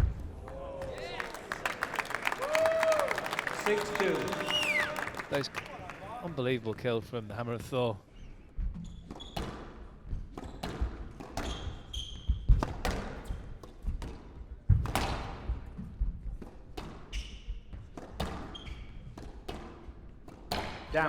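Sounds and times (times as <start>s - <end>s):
court shoes squeaking: 8.2s - 13.5s, 16.8s - 19.7s
squash ball striking rackets and walls: 8.6s - 20.9s.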